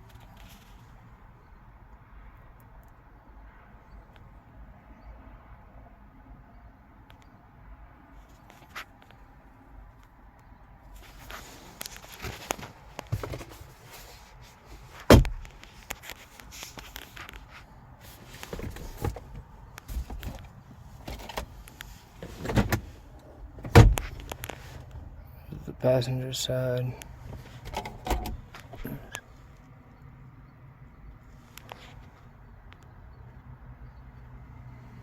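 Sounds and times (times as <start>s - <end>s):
car door shutting thump: 15.0s - 15.5s, 23.6s - 24.2s
car door clicks and knocks: 15.0s - 15.6s, 22.2s - 22.9s, 23.6s - 24.4s, 27.3s - 28.9s.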